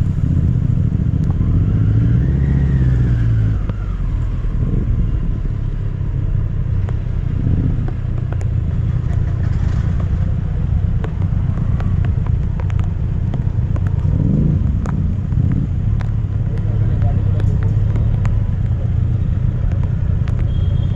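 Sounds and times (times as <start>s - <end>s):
motorcycle engine rumble: 0.0s - 20.9s.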